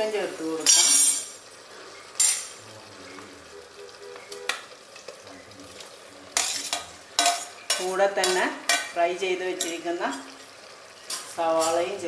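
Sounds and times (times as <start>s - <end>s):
food sizzling: 0.0s - 12.0s
spoon scraping in frying pan: 4.0s - 12.0s.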